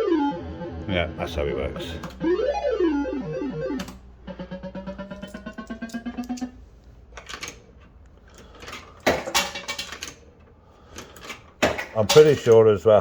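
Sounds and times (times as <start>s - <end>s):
pulsed rising electronic tone: 0.0s - 6.6s
slot machine mechanical clicking: 0.0s - 13.0s.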